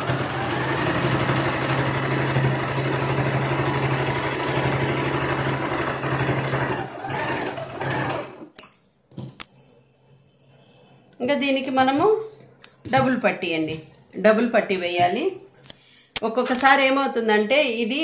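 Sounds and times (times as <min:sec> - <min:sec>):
sewing machine running: 0:00.0 - 0:08.5.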